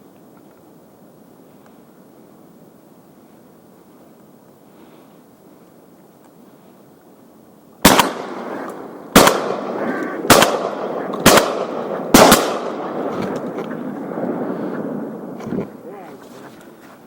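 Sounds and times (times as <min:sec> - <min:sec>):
shotgun shots with echo: 0:07.8 - 0:13.4.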